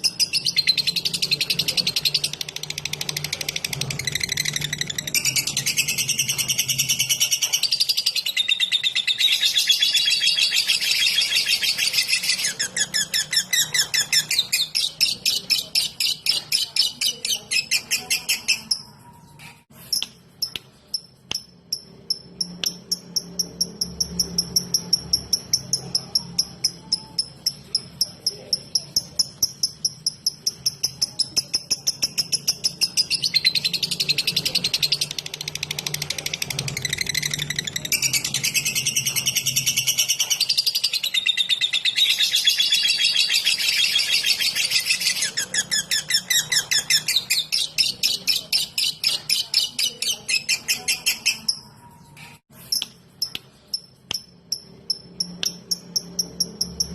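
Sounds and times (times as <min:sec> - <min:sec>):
lovebird ticking chirps: 0:19.9 - 0:51.6, 0:52.7 - 0:56.9.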